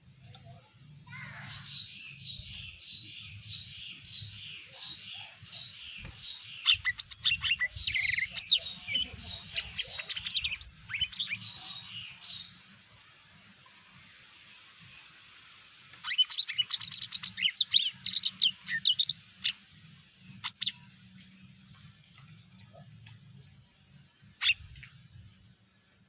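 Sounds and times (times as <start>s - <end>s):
bird singing varied chirps: 0.2s - 12.6s.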